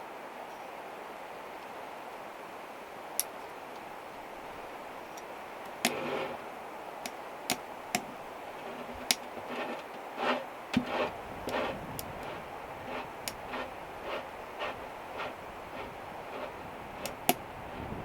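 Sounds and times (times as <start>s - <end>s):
steady hiss: 0.0s - 18.0s
sharp clicks and light knocks: 3.2s - 3.9s.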